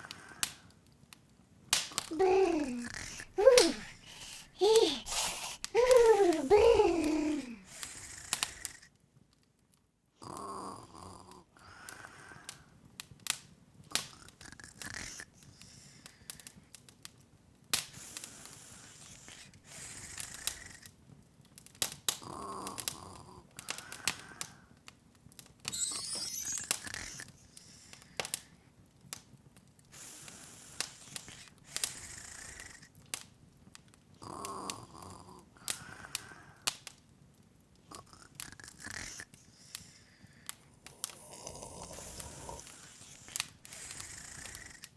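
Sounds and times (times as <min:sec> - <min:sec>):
fire crackling and popping: 0:00.0 - 0:09.9, 0:11.9 - 0:44.9
rising sparkle shimmer: 0:25.7 - 0:27.1.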